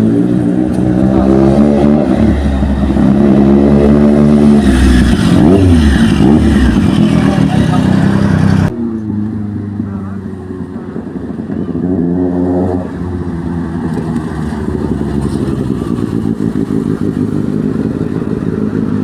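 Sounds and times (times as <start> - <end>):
engine exhaust revving: 0.0 - 9.1.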